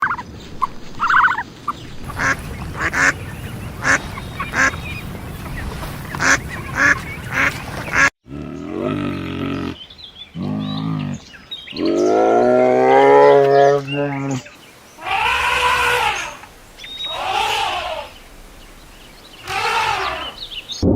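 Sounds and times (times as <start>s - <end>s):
drawn-out pitched animal calls: 2.0s - 9.8s, 11.8s - 20.8s
animal honking calls: 2.1s - 9.8s, 11.9s - 18.2s, 19.4s - 20.5s.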